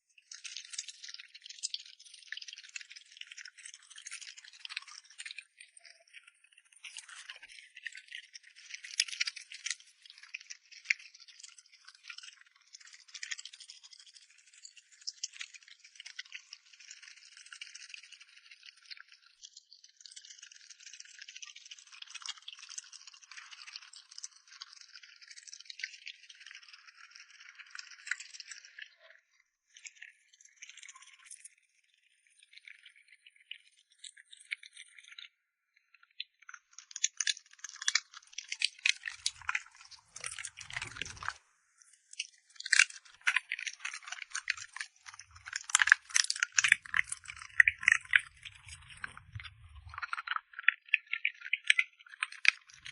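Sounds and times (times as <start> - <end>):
dog eating from a bowl: 37.0 - 41.4, 42.0 - 52.9.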